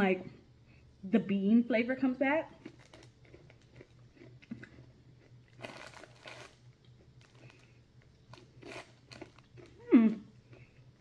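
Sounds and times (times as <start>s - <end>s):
chewing crunchy beans: 2.6s - 11.0s.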